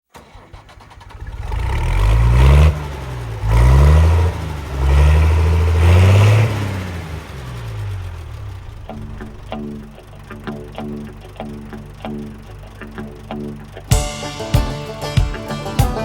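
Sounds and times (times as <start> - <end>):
vehicle engine revving: 0.1 - 11.0.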